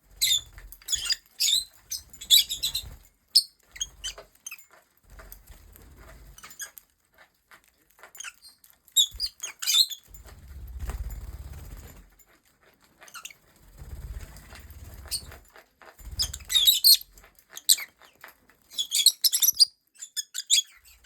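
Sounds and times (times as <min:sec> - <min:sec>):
lovebirds chirping and squawking: 0:00.1 - 0:04.6, 0:08.0 - 0:10.2, 0:13.0 - 0:13.5, 0:14.3 - 0:15.4, 0:16.0 - 0:21.0
wings flapping: 0:01.8 - 0:03.1, 0:10.1 - 0:12.2, 0:13.5 - 0:16.9.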